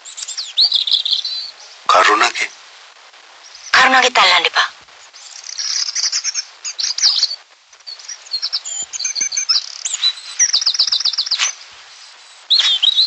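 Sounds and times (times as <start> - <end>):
birds chirping and singing: 0.0 - 1.8, 5.0 - 13.0.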